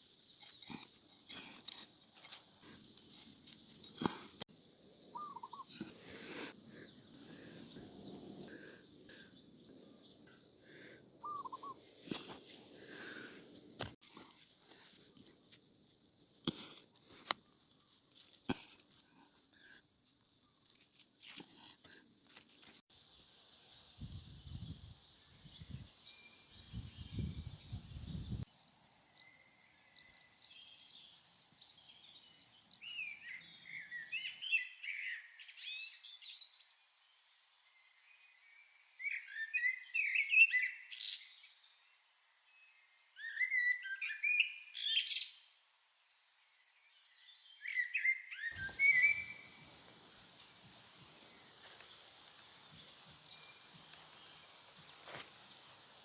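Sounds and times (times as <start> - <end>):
small birds chirping: 0.0 - 11.8, 47.2 - 56.0.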